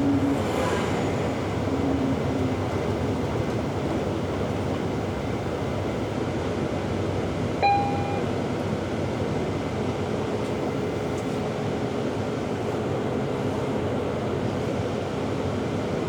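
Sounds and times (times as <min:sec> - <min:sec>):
bus engine and road noise: 0:00.0 - 0:16.0
short electronic beep: 0:07.6 - 0:08.3.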